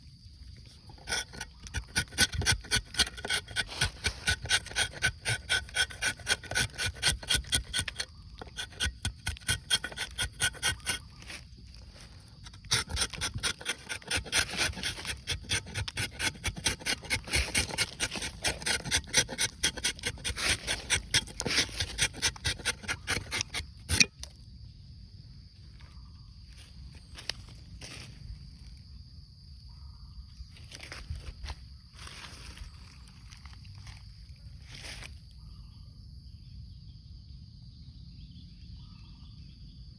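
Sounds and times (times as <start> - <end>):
knife scraping tree bark: 0.6 - 24.4.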